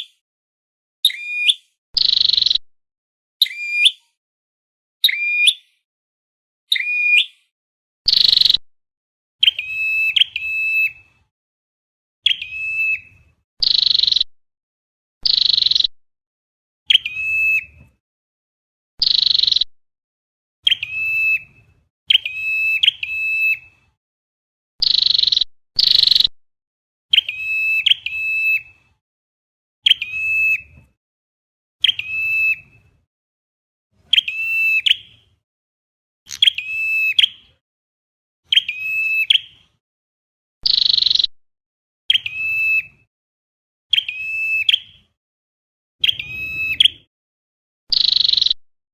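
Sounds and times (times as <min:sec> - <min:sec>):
harsh buzzy bird calls: 0:01.0 - 0:02.6, 0:12.2 - 0:14.3, 0:15.2 - 0:15.9, 0:19.0 - 0:19.7, 0:24.8 - 0:26.3, 0:40.6 - 0:41.3, 0:46.0 - 0:47.1, 0:47.9 - 0:48.6.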